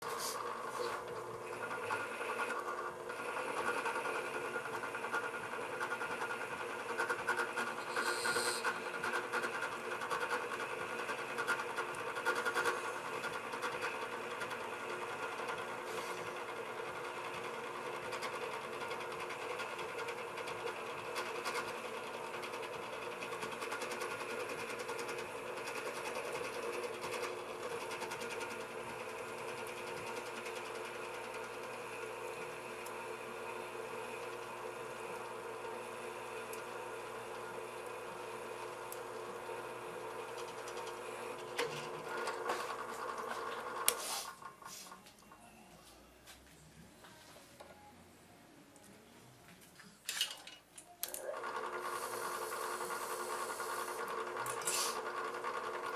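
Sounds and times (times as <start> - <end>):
drill press motor hum: 0.0 - 45.2, 51.0 - 55.9.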